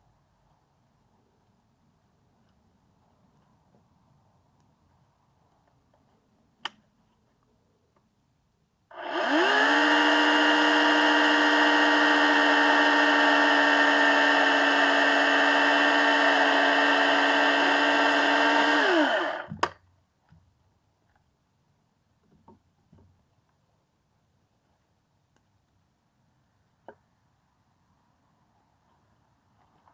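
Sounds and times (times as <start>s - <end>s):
electric saw motor running: 8.9s - 19.5s.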